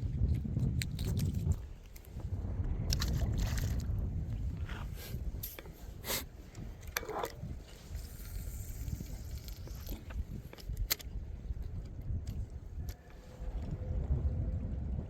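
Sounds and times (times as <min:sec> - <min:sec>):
wind buffeting the microphone: 0:00.0 - 0:15.0
sharp clicks and scrapes: 0:00.2 - 0:02.1, 0:04.7 - 0:13.2.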